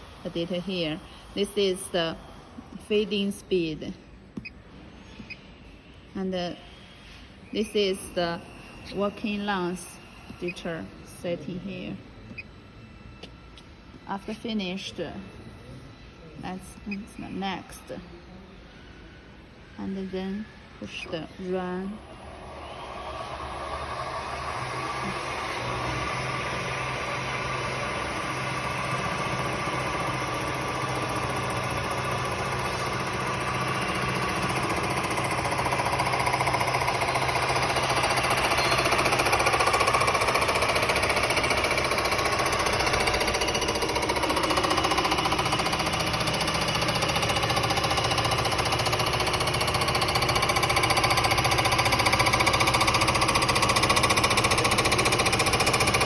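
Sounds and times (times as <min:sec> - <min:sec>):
milling machine running: 0:22.0 - 0:56.0.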